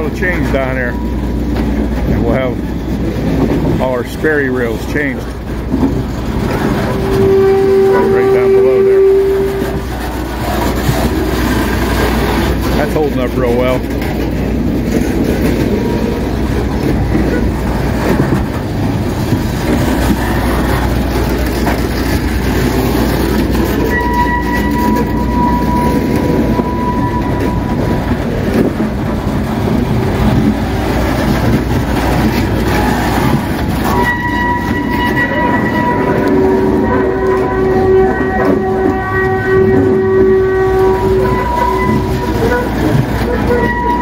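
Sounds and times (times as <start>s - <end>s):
train wheels rumbling on rails: 0.0s - 44.0s
high wheel squeal: 6.4s - 10.7s, 21.4s - 28.2s, 32.6s - 44.0s.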